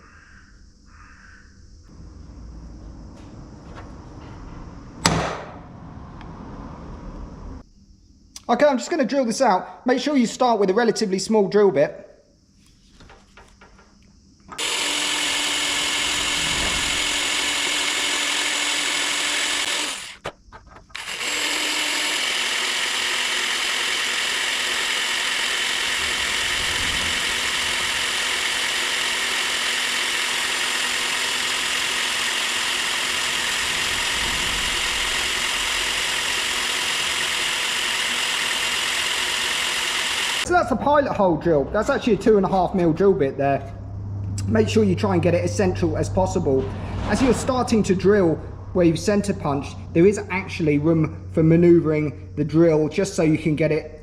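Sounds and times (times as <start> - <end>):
electric drill boring into metal: 14.5 - 40.5.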